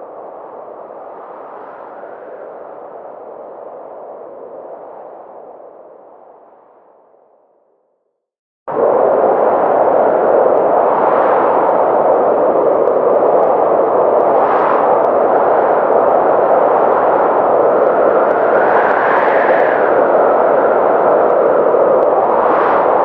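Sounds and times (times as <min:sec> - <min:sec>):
blizzard wind rushing: 0:00.0 - 0:06.8, 0:08.7 - 0:23.0.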